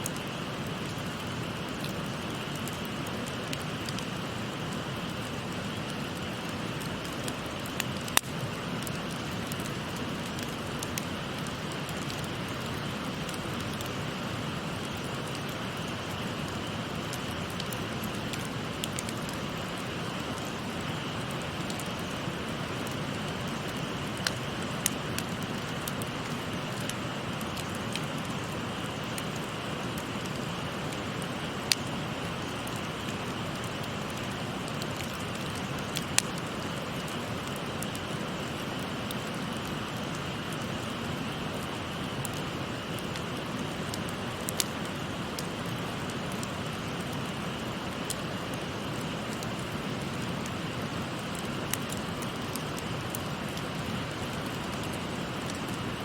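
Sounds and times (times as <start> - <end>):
wood fire crackling: 0.0 - 56.0
burning wood popping: 0.1 - 56.0.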